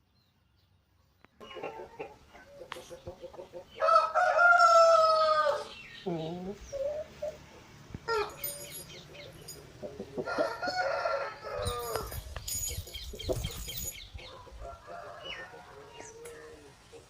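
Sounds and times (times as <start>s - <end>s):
hens clucking and cackling: 1.4s - 8.4s, 9.2s - 12.0s
rooster crowing: 3.8s - 5.7s, 10.2s - 12.1s.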